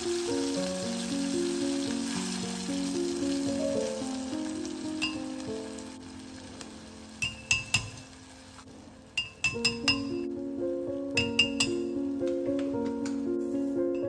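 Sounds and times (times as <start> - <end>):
squid sizzling in a pot: 0.0 - 10.4
soft background music: 0.0 - 14.0.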